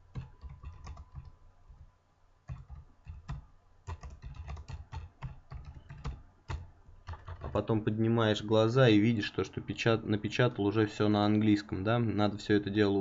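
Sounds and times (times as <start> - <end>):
typing on computer keyboard: 0.0 - 1.8, 2.5 - 7.6.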